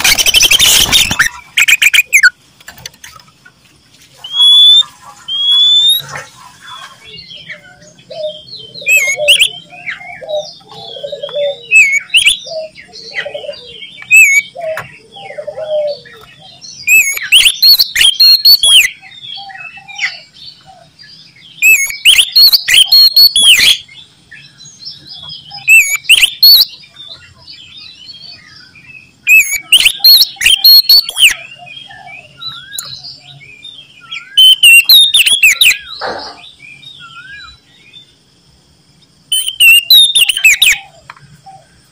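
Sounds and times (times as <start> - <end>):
bird singing whistled phrases: 0.0 - 2.4, 4.2 - 6.1, 7.7 - 12.7, 14.0 - 14.6, 16.8 - 20.2, 21.6 - 23.9, 25.5 - 26.7, 29.2 - 33.0, 34.0 - 36.0, 39.3 - 40.9
bird calls and chatter: 0.0 - 41.9.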